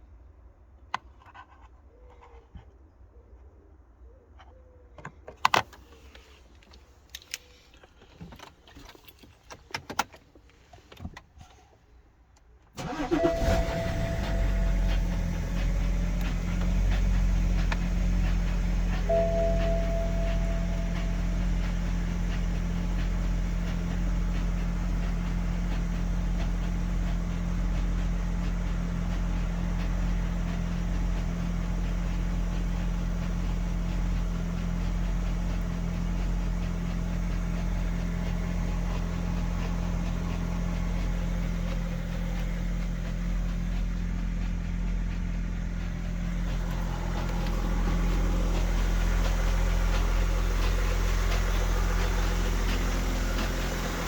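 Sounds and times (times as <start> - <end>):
diesel engine idling: 12.8 - 54.0
fast engine ticking: 12.8 - 54.0.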